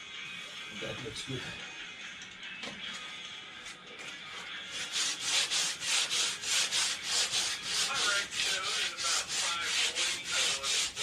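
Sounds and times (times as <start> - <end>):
sandpaper rubbing on wood: 4.7 - 11.0.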